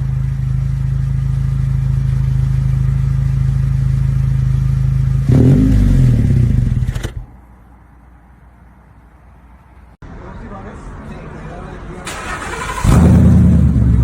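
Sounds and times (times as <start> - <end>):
car exhaust idling with rev: 0.0 - 7.3.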